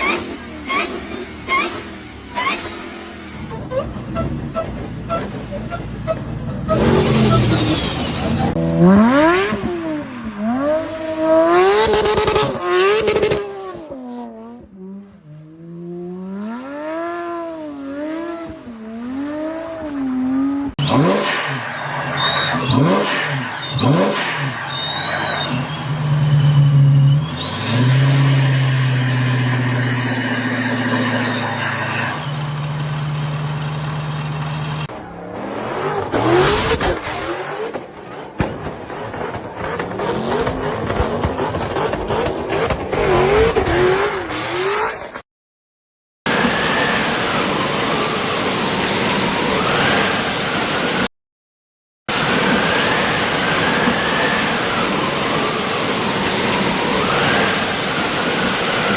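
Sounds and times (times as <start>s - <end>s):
tyre squeal: 0.0s - 2.8s, 3.4s - 9.4s, 20.8s - 32.8s
car engines revving hard: 0.0s - 45.2s, 52.1s - 58.9s.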